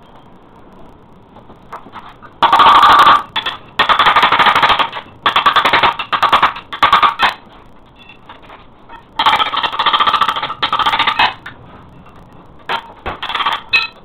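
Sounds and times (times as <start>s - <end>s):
rotary hammer hammering: 2.4s - 7.4s, 9.2s - 11.5s.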